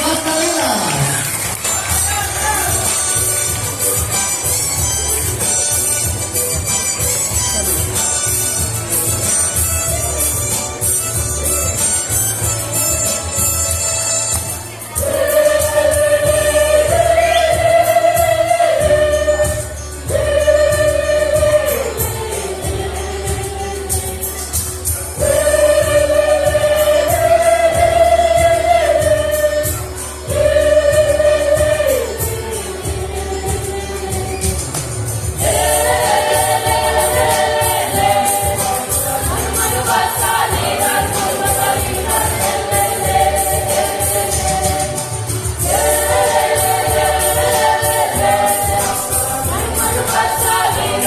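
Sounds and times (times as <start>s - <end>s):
choir singing in harmony: 14.8s - 51.0s
steady beat: 34.1s - 51.0s.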